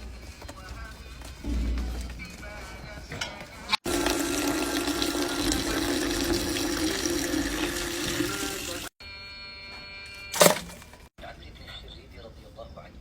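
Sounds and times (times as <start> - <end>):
running water: 3.8 - 8.9.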